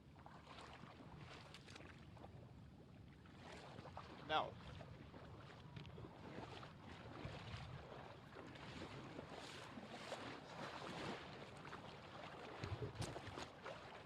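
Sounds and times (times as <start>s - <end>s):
splashing through floodwater: 6.1s - 14.0s.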